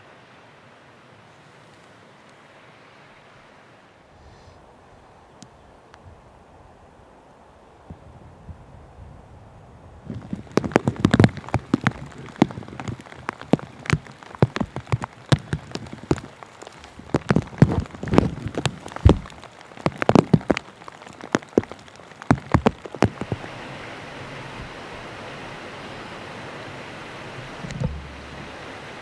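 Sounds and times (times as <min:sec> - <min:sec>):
steady hiss: 0:00.0 - 0:29.0
raindrops tapping on a surface: 0:10.1 - 0:23.7, 0:27.3 - 0:29.0.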